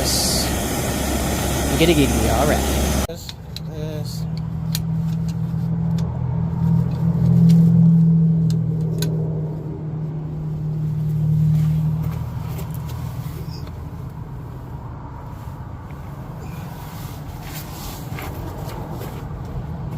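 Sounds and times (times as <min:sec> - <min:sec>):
vehicle engine humming: 0:00.0 - 0:19.9.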